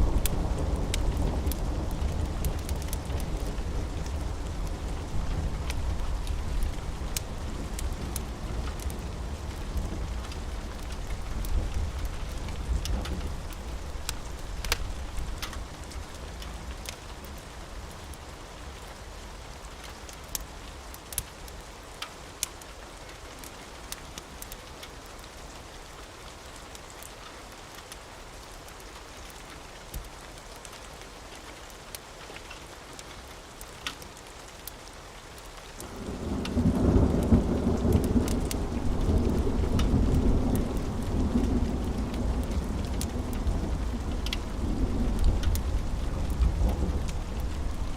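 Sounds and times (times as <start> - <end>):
low thunder rumble: 0.0 - 16.0, 35.9 - 47.9
steady rain with sharp ticks: 0.0 - 47.9.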